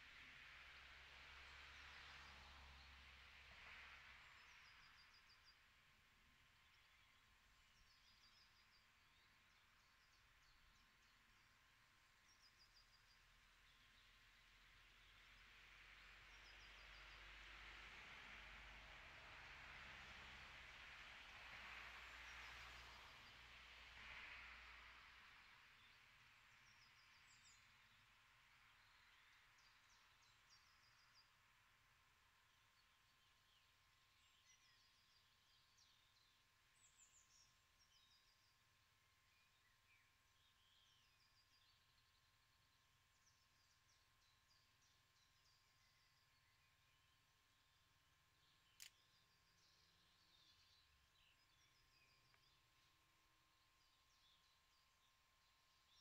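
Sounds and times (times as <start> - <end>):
faint bird chirping: 25.4 - 56.0.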